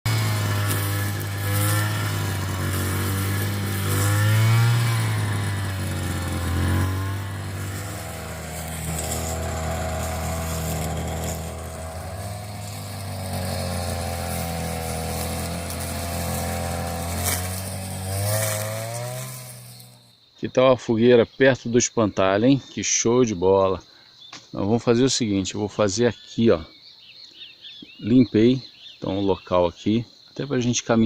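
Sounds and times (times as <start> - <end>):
small engine humming: 0.1 - 20.1.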